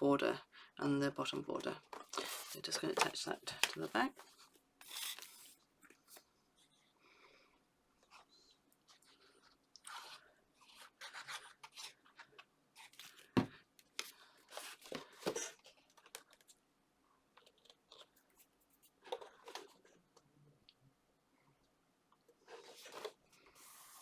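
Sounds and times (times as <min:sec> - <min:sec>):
paper and card rustling: 0:01.6 - 0:06.3, 0:08.2 - 0:16.5, 0:22.5 - 0:24.0.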